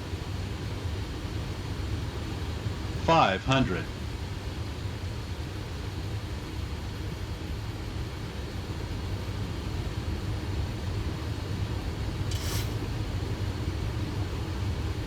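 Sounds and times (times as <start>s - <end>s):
airplane cockpit engine rumble: 0.0s - 15.0s
brief hiss: 12.3s - 12.9s.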